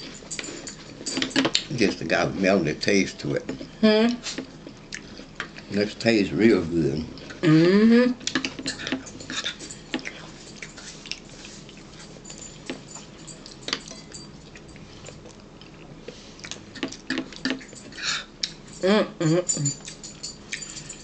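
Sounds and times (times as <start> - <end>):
person chewing food: 3.4 - 5.8, 8.2 - 18.7.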